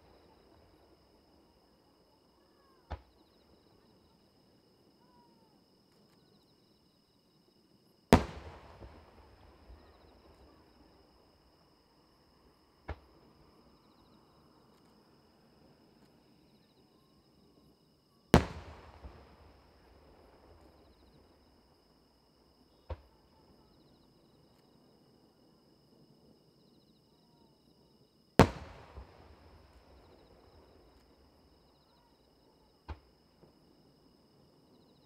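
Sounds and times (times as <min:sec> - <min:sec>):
sharp firework bang: 0:08.1 - 0:10.6, 0:18.4 - 0:21.0, 0:28.4 - 0:31.0
firework shells booming: 0:08.1 - 0:11.3, 0:18.4 - 0:21.6, 0:28.4 - 0:31.6.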